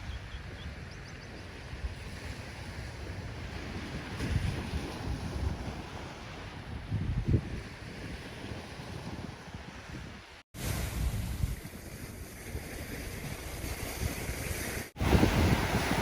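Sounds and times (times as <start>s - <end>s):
ocean waves washing on shore: 0.0s - 16.0s
wind buffeting microphone: 0.0s - 16.0s.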